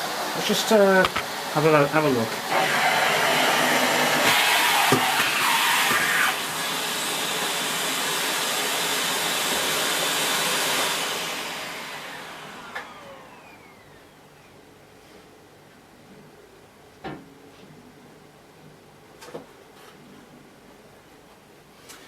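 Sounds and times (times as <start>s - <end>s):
vacuum cleaner winding down: 0.0s - 14.3s
vacuum cleaner running: 0.0s - 14.4s.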